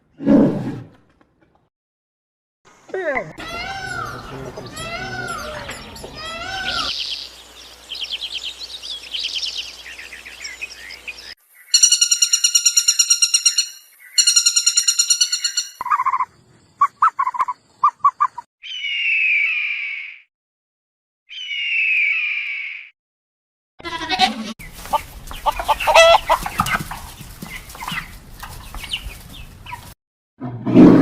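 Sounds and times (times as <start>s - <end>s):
animal chirps and trills: 3.3s - 7.2s, 11.6s - 20.2s, 21.3s - 22.9s, 23.9s - 26.9s
harsh squawking call: 3.4s - 7.0s.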